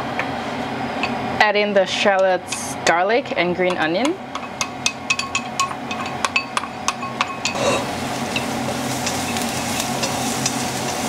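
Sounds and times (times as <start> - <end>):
frying sizzle in wok: 4.3 - 11.0.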